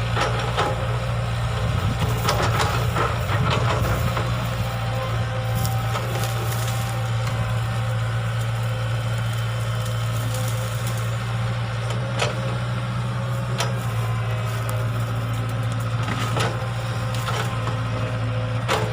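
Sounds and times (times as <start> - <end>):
excavator diesel engine running: 0.0 - 18.9.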